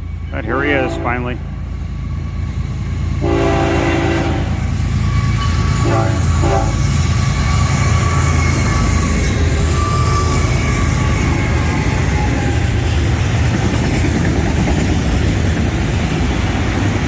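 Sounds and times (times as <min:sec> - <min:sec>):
locomotives rumbling past: 0:00.0 - 0:17.0
locomotive air horn blasts: 0:00.5 - 0:01.4, 0:03.2 - 0:04.7, 0:05.7 - 0:09.0.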